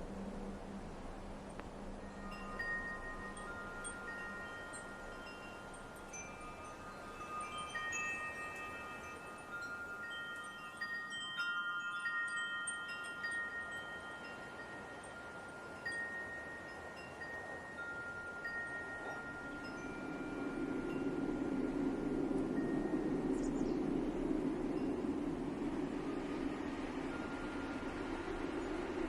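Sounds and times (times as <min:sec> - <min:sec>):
soft steady hiss: 0:00.0 - 0:29.0
wind chimes ringing: 0:01.9 - 0:29.0.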